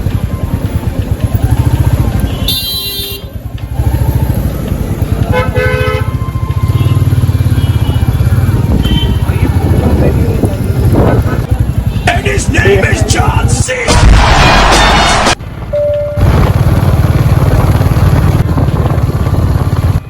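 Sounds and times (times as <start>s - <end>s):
motorcycle engine running: 0.0s - 13.6s, 15.4s - 20.0s
vehicle horn honking: 2.3s - 3.4s, 5.2s - 9.5s.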